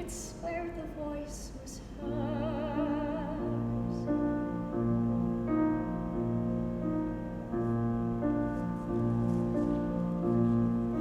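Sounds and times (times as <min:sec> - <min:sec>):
solo piano chords: 0:01.9 - 0:11.0.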